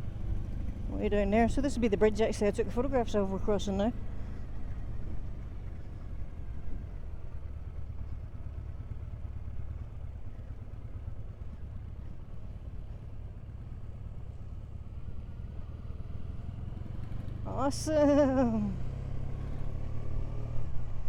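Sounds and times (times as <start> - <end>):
motorcycle engine rumbling: 0.0 - 21.0.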